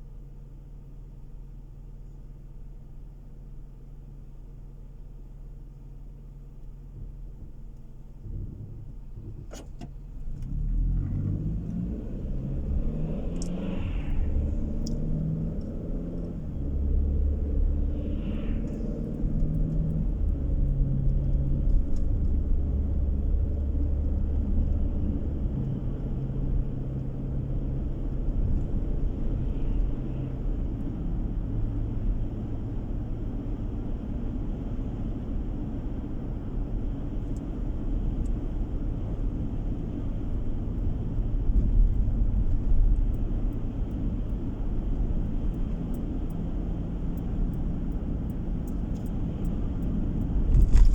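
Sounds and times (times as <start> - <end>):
car engine and tyre rumble: 0.0 - 50.9.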